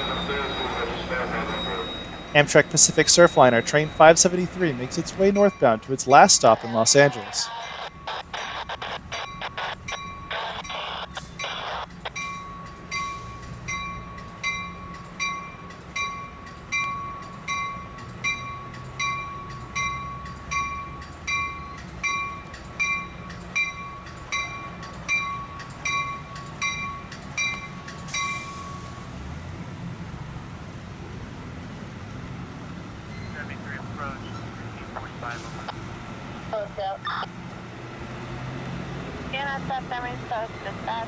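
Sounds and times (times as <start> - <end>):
low train rumble: 0.0 - 8.1, 11.3 - 41.0
railway warning bell ringing: 0.0 - 29.4.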